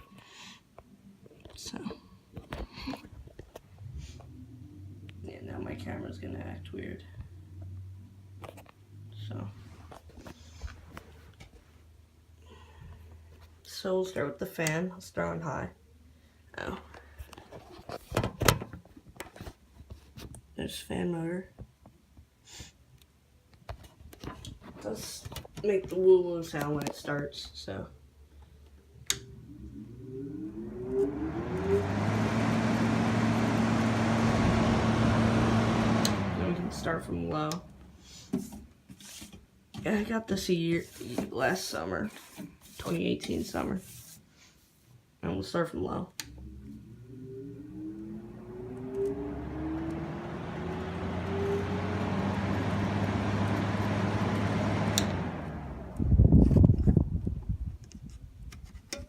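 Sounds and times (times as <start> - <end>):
air conditioner fan whining: 1.6 - 15.7, 24.2 - 44.2, 45.2 - 57.7.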